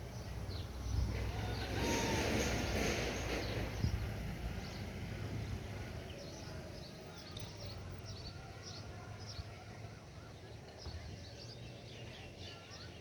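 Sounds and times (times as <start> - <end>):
brief rush of noise: 1.3 - 3.8.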